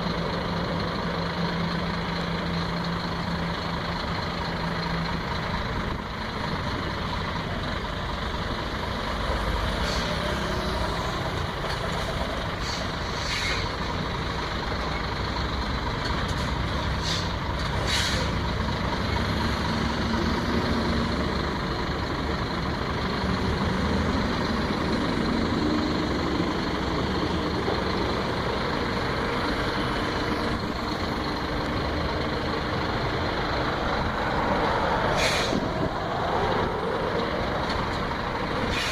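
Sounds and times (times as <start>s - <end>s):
diesel truck engine running: 0.0s - 38.9s
air brake hisses: 9.8s - 10.2s, 12.6s - 13.7s, 17.0s - 18.4s, 35.1s - 35.7s, 38.6s - 38.9s.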